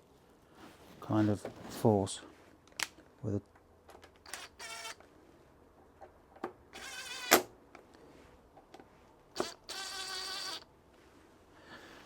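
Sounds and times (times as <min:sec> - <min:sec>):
cordless drill buzzing: 0:04.3 - 0:05.0, 0:06.8 - 0:07.5, 0:09.4 - 0:10.6.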